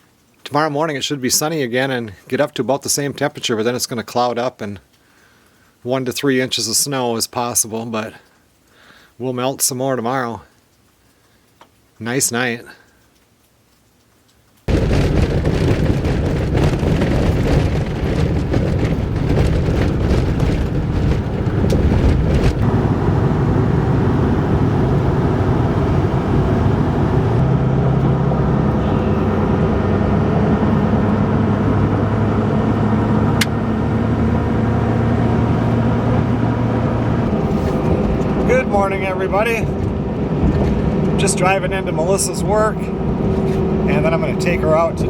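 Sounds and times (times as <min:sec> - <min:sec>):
engine and road rumble in cab: 0:14.7 - 0:45.0.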